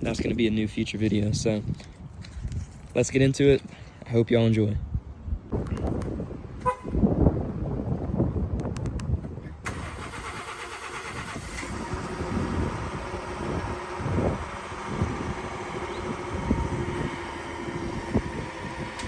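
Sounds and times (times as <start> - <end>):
engine starting and idling: 9.6 - 19.0.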